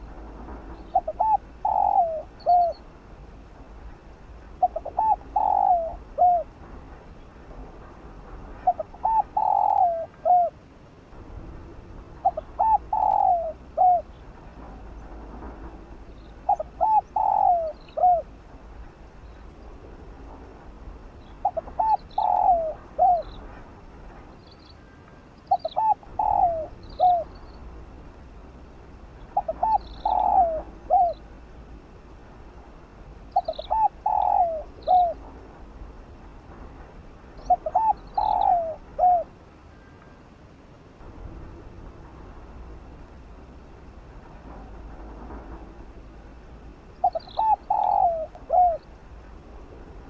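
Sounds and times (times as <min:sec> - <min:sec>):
dove cooing: 0:00.8 - 0:02.9, 0:04.6 - 0:06.6, 0:08.6 - 0:10.6, 0:12.2 - 0:15.2, 0:16.4 - 0:18.4, 0:21.3 - 0:23.6, 0:25.5 - 0:27.4, 0:29.3 - 0:31.3, 0:33.3 - 0:35.3, 0:37.4 - 0:39.4, 0:47.0 - 0:48.9.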